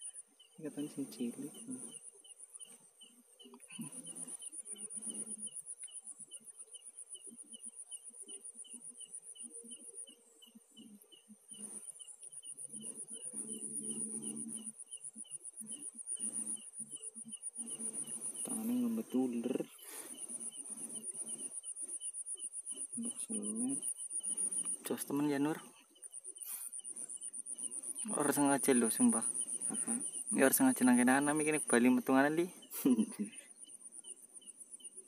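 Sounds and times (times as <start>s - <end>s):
insect chirping: 0.0s - 35.0s
insects trilling: 0.0s - 35.0s.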